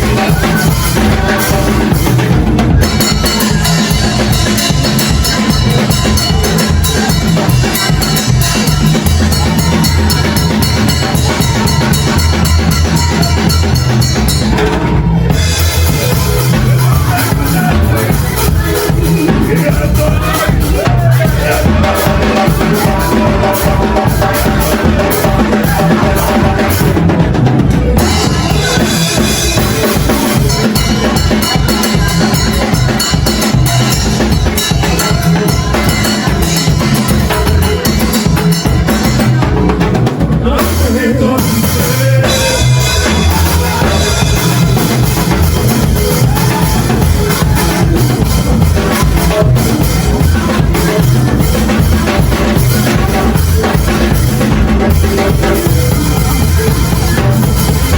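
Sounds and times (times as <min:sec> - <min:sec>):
worship band music: 0:00.0 - 0:57.9.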